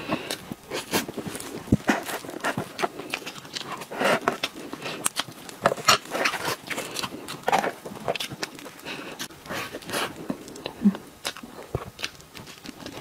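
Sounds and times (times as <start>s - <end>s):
plastic gloves crinkling: 0.0s - 11.5s
wet chewing and lip smacks: 0.3s - 13.0s.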